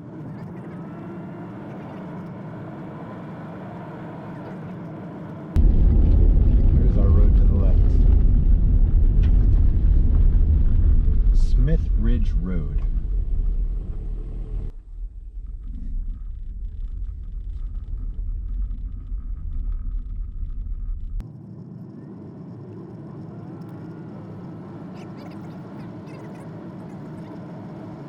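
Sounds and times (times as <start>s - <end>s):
car tyre rumble: 0.0s - 21.3s.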